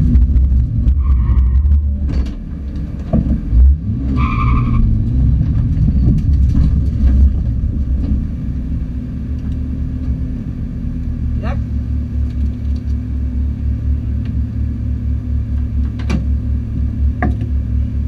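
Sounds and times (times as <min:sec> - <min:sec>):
loud car engine running: 0:00.0 - 0:18.0.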